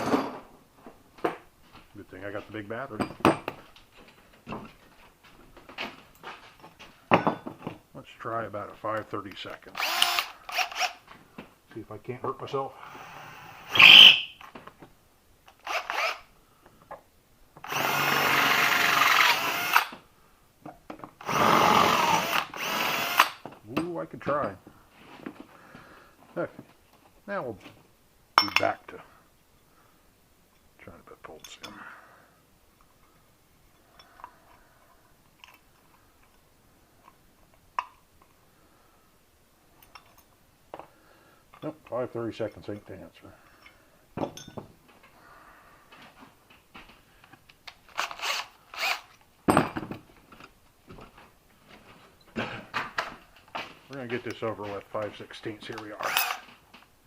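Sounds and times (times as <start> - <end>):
cordless drill drilling metal: 9.7 - 11.0, 12.8 - 14.3, 15.6 - 16.3, 17.6 - 20.0, 21.2 - 23.4, 47.9 - 49.2, 56.0 - 56.5.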